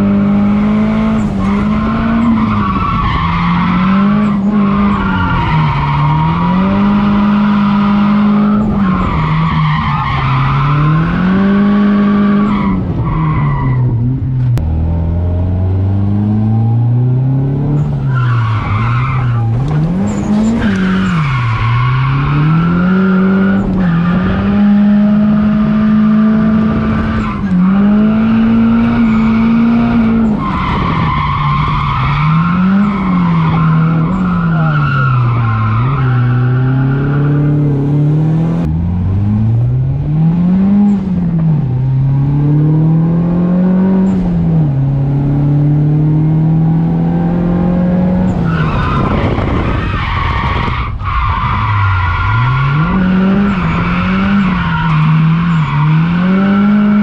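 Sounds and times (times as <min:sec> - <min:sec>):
car engine revving: 0:00.0 - 0:57.0
tyres squealing and skidding: 0:01.1 - 0:14.0, 0:17.8 - 0:38.4, 0:48.0 - 0:57.0.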